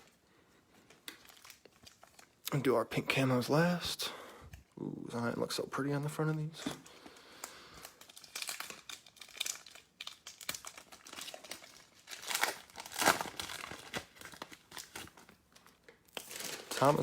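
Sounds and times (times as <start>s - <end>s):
foil wrapper crinkling and tearing: 0.8s - 2.4s, 6.6s - 17.0s.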